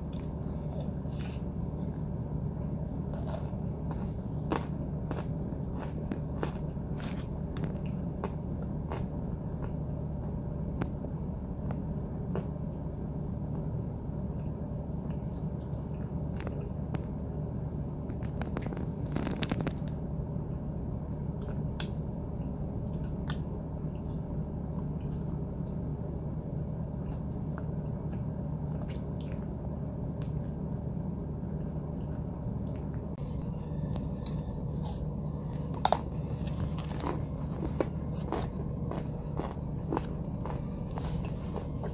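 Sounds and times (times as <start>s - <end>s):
crunching chewing: 0.0s - 10.9s, 18.0s - 20.0s, 30.1s - 41.9s
low hum: 0.0s - 41.9s.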